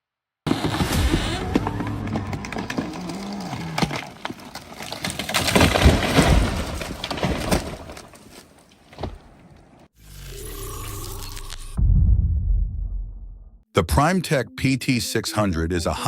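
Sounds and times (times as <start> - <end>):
wood cracking and splintering: 0.5 - 9.7.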